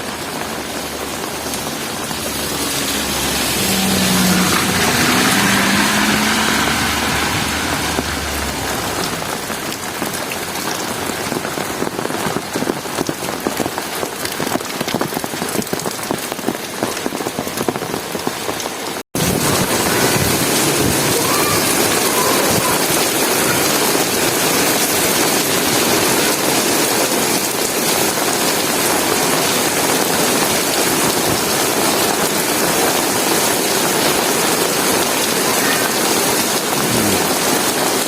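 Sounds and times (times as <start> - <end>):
heavy rain on hard surfaces: 0.0 - 38.0.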